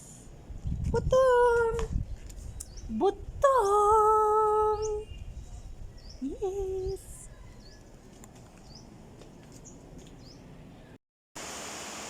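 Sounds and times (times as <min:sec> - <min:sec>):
small bird chirping: 0:02.0 - 0:03.0.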